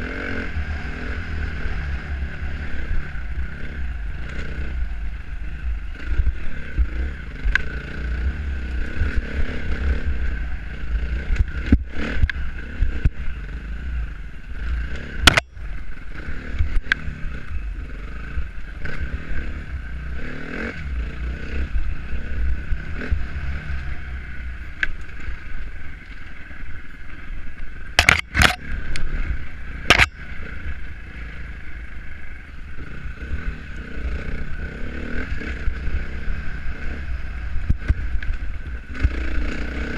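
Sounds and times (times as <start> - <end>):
dirt bike engine: 0.0 - 39.9.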